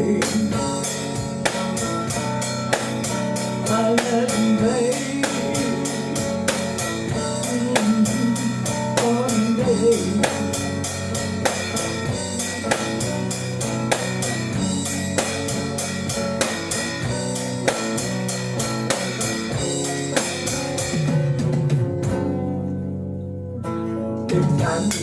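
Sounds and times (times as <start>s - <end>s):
drum kit: 0.0s - 22.7s, 23.6s - 25.0s
bass guitar: 0.0s - 25.0s
guitar: 0.0s - 25.0s.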